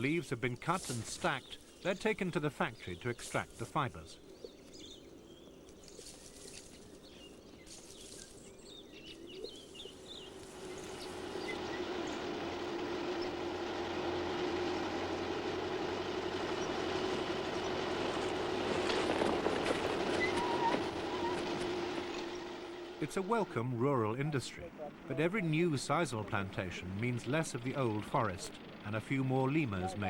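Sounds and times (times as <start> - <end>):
faint chirps and clicks: 5.6 - 11.6
machine humming steadily: 9.6 - 30.0.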